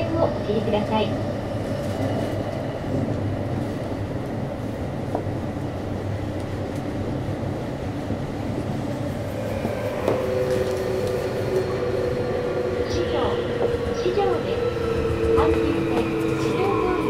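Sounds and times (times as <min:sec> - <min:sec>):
train wheels rumbling on rail: 0:00.0 - 0:17.0
two-tone whine: 0:09.2 - 0:17.0.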